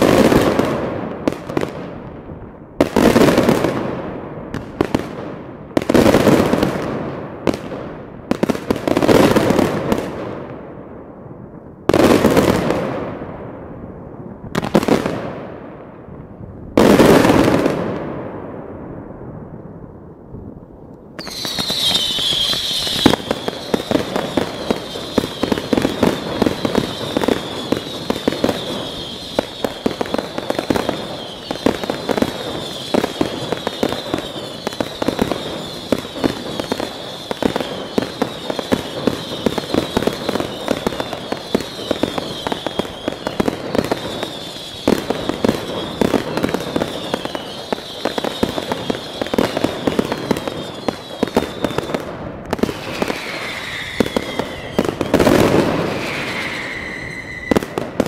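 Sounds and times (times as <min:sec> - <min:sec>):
fireworks bangs and cracks: 0:00.0 - 0:58.0
fireworks whistle gliding down: 0:21.2 - 0:58.0.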